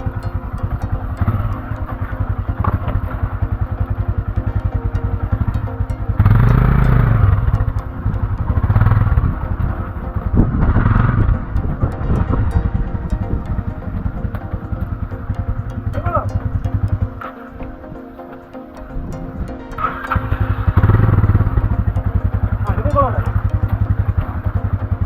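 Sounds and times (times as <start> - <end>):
motorcycle engine revving: 0.1 - 12.4.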